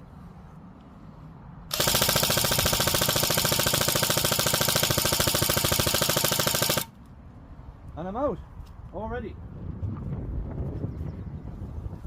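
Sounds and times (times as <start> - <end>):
airsoft gun automatic fire: 1.7 - 6.9.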